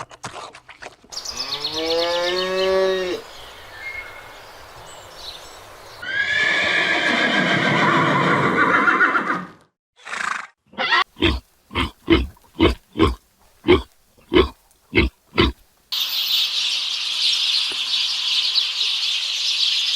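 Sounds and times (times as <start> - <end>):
horse whinnying: 6.0 - 15.6
horse snorting: 11.2 - 15.7.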